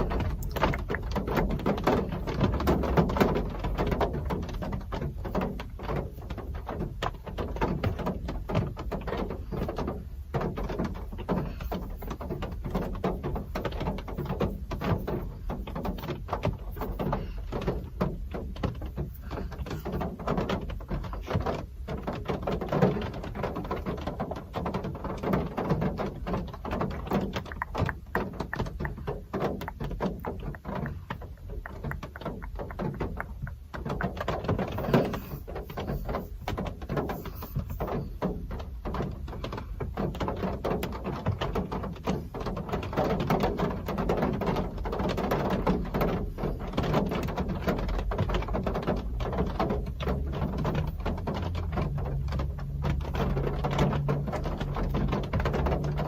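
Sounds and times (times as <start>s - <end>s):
rain drops ticking: 0.0s - 56.0s.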